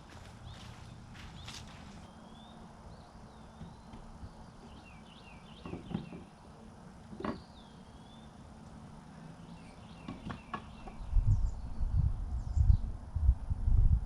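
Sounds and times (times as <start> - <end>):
birds chirping and whistling: 0.4 - 6.2.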